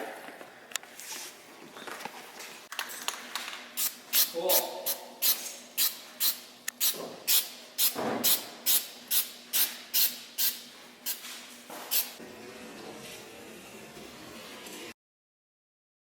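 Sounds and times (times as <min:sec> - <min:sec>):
spray paint can short sprays: 0:03.8 - 0:12.2.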